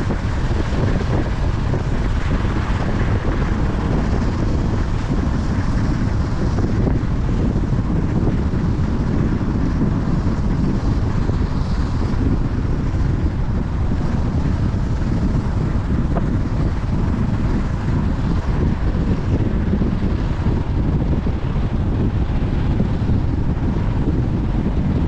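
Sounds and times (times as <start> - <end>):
road and engine noise: 0.0 - 25.0
wind rushing over microphone: 0.0 - 25.0.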